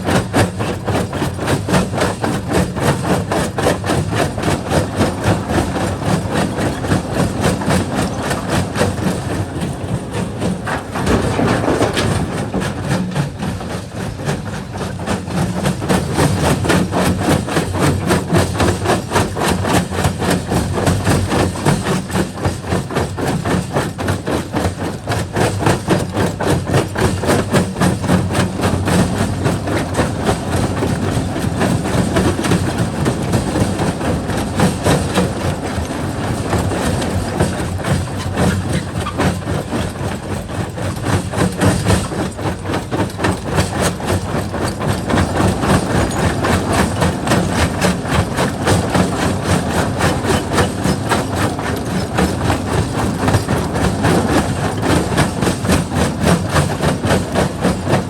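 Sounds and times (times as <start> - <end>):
rock crusher breaking rock: 10.7 - 13.6.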